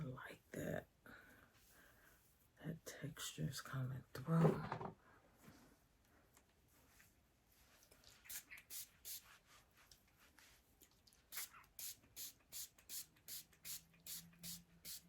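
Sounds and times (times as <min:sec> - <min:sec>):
spray bottle squirts: 0:08.1 - 0:09.2.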